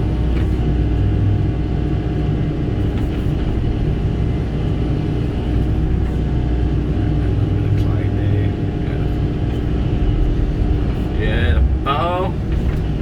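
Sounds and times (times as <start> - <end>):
excavator diesel engine rumbling: 0.0 - 13.0.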